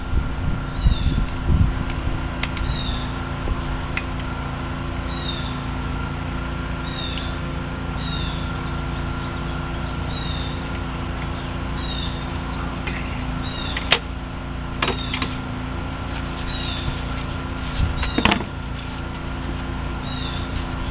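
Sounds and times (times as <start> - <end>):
steady low hum: 0.0 - 20.9
small bird chirping: 2.5 - 3.2, 5.1 - 5.7, 6.8 - 7.4, 8.0 - 13.9, 14.9 - 15.3, 16.1 - 19.0, 20.0 - 20.9.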